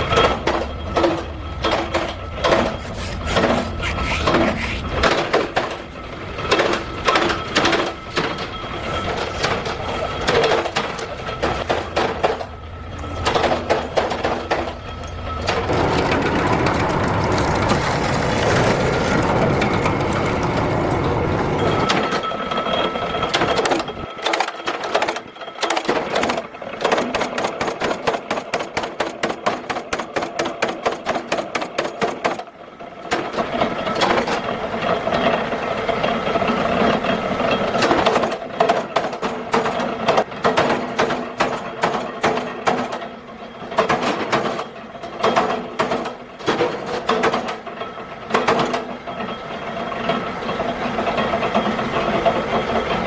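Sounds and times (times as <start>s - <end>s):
workshop machinery running: 0.0s - 53.0s
rapid mechanical strokes: 1.9s - 12.4s.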